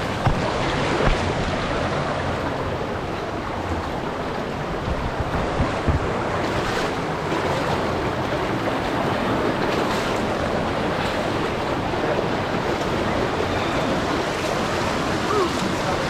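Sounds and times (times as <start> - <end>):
water rushing down a cascade: 0.0 - 16.0
low bumps on the microphone: 4.8 - 6.3.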